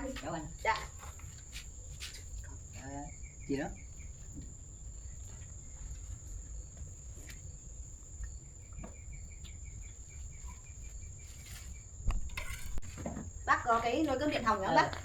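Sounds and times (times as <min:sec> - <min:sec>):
insect high-pitched trill: 0:00.0 - 0:14.8
insect pulsed chirping: 0:02.3 - 0:12.4.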